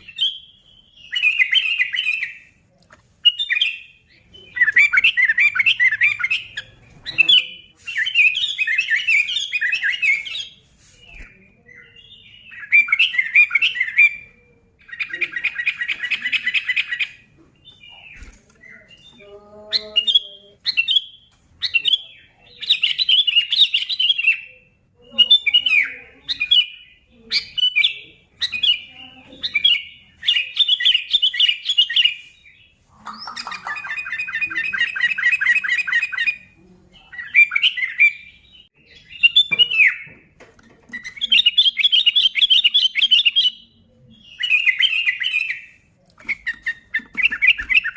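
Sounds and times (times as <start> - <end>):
bird chattering song: 0.0 - 2.6, 3.2 - 47.9.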